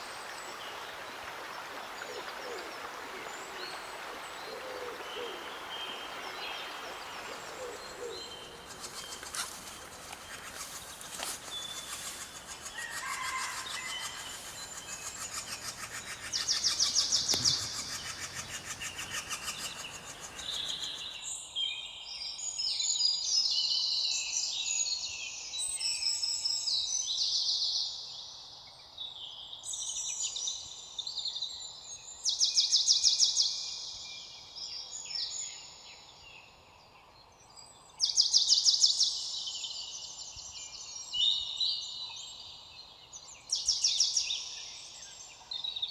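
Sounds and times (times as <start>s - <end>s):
background hiss: 7.3s - 21.2s
birds chirping and singing: 7.8s - 21.2s
loud fast high bird trills: 8.2s - 21.1s.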